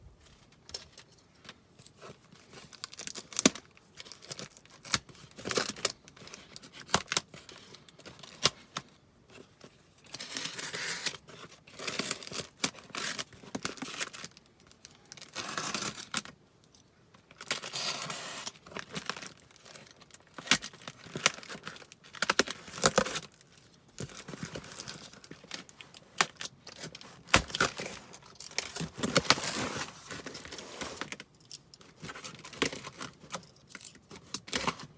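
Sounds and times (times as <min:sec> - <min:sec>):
packaging tearing and crinkling: 0:10.1 - 0:16.4, 0:17.4 - 0:31.3.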